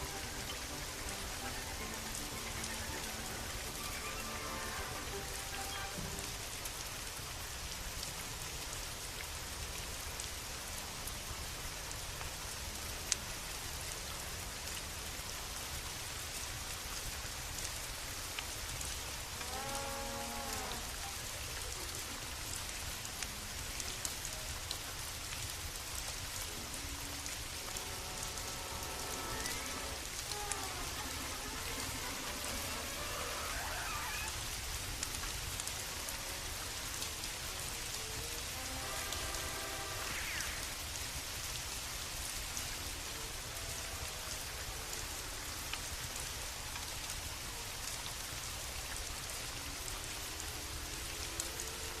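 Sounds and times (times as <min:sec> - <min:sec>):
steady rain falling: 0:00.0 - 0:52.0
faint pitched sounds: 0:26.6 - 0:35.1, 0:37.8 - 0:40.8
rising and falling call: 0:27.8 - 0:34.5, 0:38.1 - 0:40.8.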